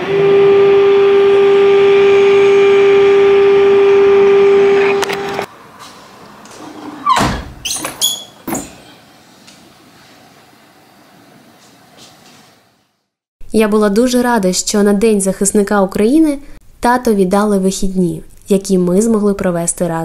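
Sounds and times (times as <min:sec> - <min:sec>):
air-raid siren: 0:00.0 - 0:05.5.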